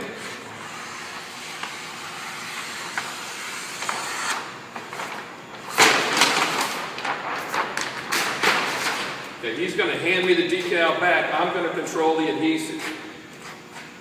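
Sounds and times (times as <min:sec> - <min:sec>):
paper backing rustling: 0:04.8 - 0:09.2.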